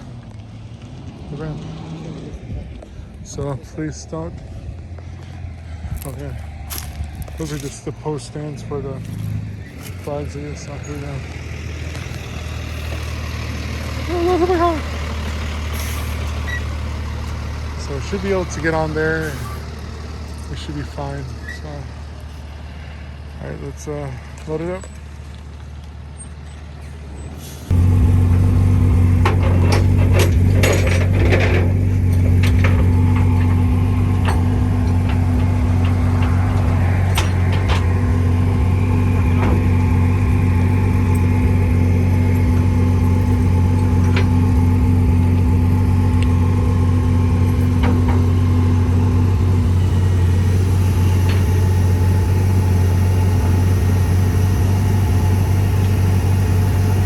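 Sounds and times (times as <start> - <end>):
hydraulics humming: 2.2 - 25.2, 25.8 - 57.0
knocks and clanks: 29.1 - 41.4, 42.4 - 46.7, 47.3 - 49.6.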